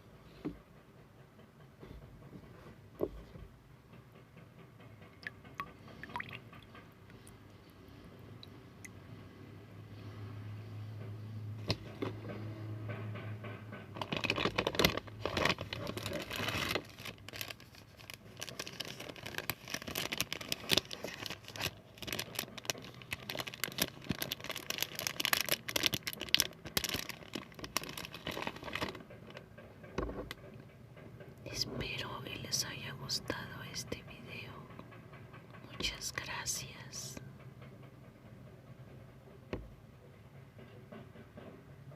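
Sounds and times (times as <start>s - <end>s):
material crinkling and crackling: 13.9s - 30.5s.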